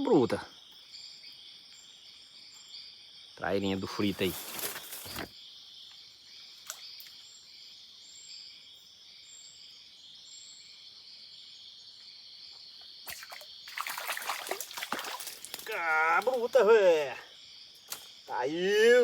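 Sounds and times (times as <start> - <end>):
insects chorus: 0.0 - 19.0
splashing: 13.1 - 16.7.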